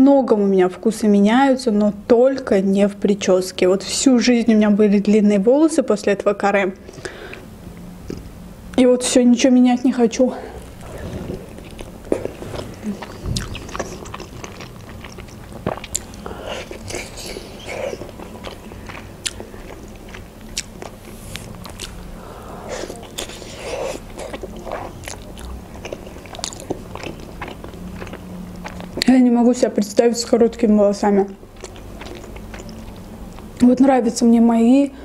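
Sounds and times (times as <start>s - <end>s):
person chewing food: 10.6s - 29.1s, 31.5s - 33.6s.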